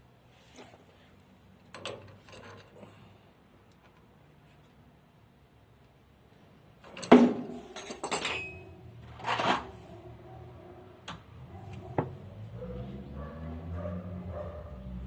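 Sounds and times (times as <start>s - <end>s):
metal tools clattering: 6.8s - 9.7s.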